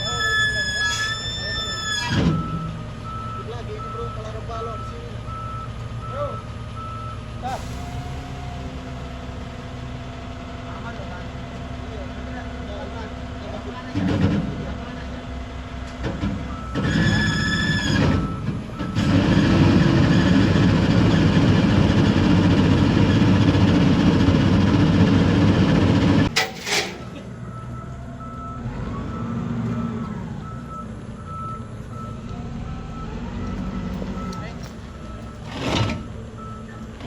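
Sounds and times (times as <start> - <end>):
reversing alarm beeping: 0.0 - 11.6, 16.5 - 19.0, 27.0 - 36.9
diesel engine running hard: 0.0 - 37.0.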